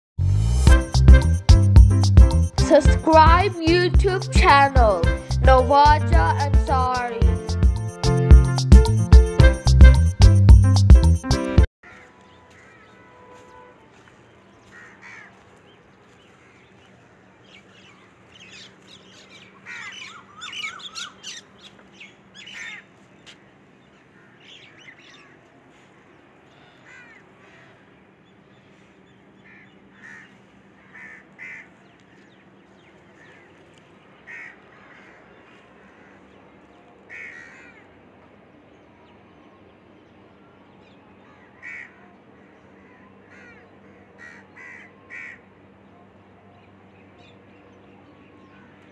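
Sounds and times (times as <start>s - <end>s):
birds calling: 11.8s - 48.9s.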